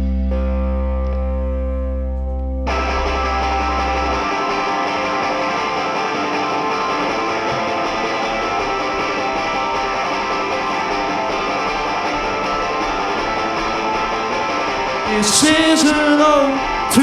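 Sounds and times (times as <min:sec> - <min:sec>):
bass: 0:00.0 - 0:17.0
electric guitar chords: 0:00.0 - 0:17.0
drums: 0:02.7 - 0:17.0.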